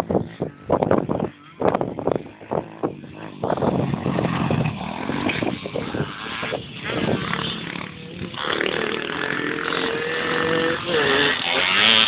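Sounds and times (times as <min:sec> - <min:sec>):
small motorbike engine revving: 0:00.2 - 0:12.0.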